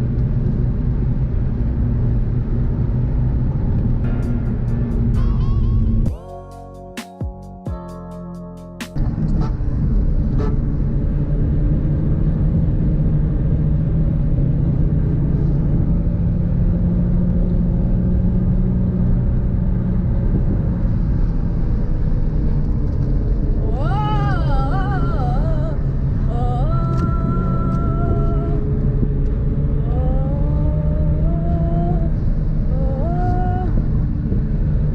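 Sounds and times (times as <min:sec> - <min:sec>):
car engine and road noise: 0:00.0 - 0:34.9
high wavering whine: 0:23.2 - 0:33.7.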